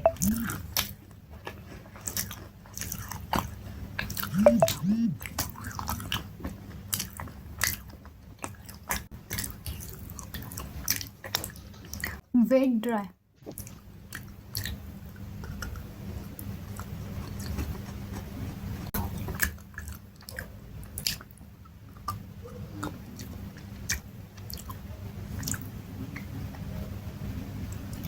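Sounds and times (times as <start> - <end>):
person chewing crunchy food: 0.0 - 12.1, 16.7 - 18.4
steady low hum: 4.2 - 5.4.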